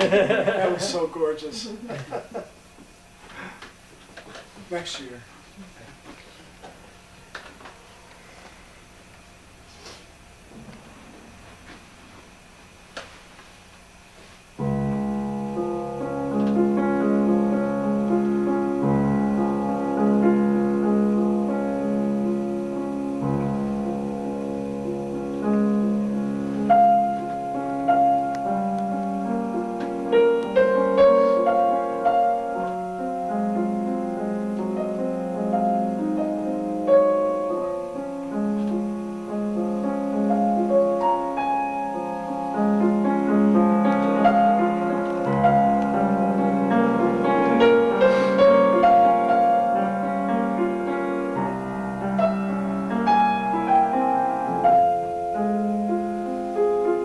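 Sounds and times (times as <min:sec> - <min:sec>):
slow piano piece: 0:14.5 - 0:57.0.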